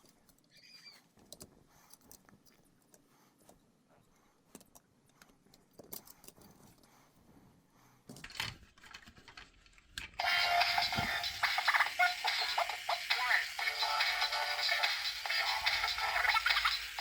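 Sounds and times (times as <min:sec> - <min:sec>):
tools and small parts clinking: 0:00.0 - 0:00.5, 0:04.5 - 0:06.9, 0:08.1 - 0:10.2.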